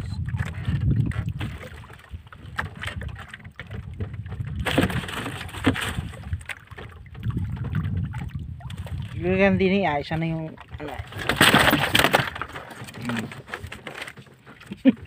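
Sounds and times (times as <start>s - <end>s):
wind rumbling on microphone: 0.0s - 13.8s
knocks and rustling handling fish: 0.3s - 9.2s, 10.1s - 15.0s.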